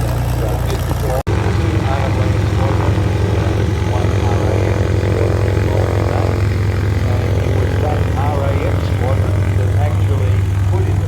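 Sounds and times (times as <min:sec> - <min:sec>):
propeller plane engine drone: 0:00.0 - 0:11.0.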